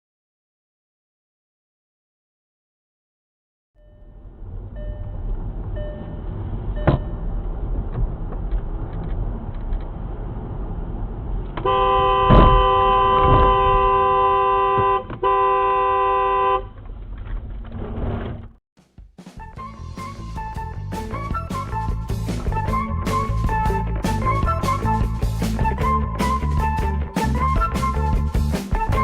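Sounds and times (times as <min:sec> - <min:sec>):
car road rumble: 0:03.8 - 0:18.6
car horn: 0:11.6 - 0:16.8
loud thump: 0:12.2 - 0:14.0.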